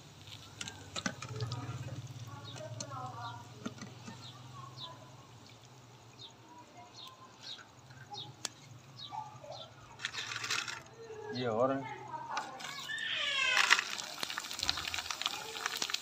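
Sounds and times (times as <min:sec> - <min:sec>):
bird chirping: 0:01.4 - 0:13.6.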